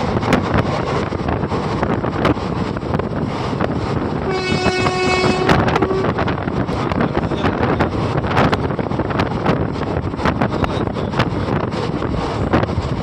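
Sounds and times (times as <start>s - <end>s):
wind buffeting microphone: 0.0s - 13.0s
horn steady note: 4.3s - 6.3s.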